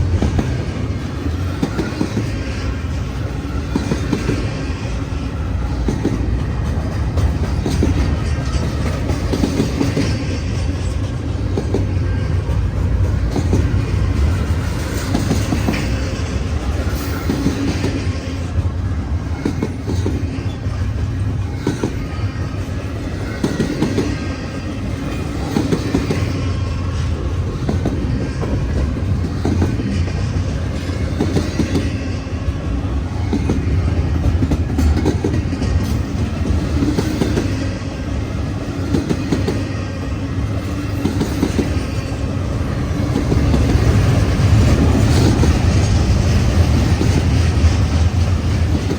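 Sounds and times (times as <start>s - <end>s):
train rumbling past: 0.0s - 48.9s
wheels clicking over rail joints: 3.2s - 32.1s.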